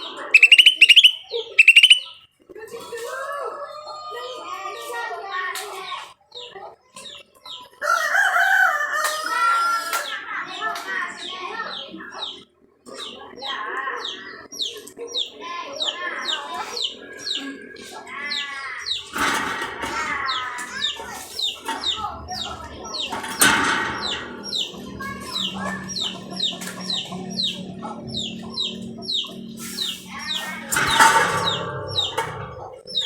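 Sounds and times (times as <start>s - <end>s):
drawn-out bird calls: 0.0s - 2.2s
songbird chirping: 0.0s - 2.4s, 11.1s - 33.0s.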